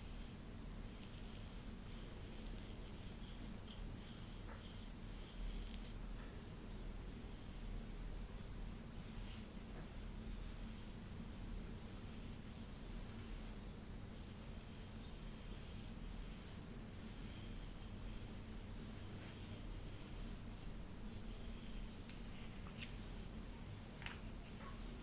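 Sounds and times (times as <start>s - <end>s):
brush swishing through hair: 14.2s - 25.0s.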